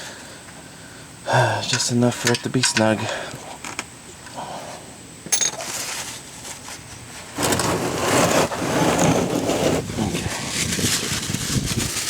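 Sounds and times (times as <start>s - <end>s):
metallic clink: 1.6s - 3.2s, 5.3s - 5.7s
wind on microphone: 9.1s - 12.0s.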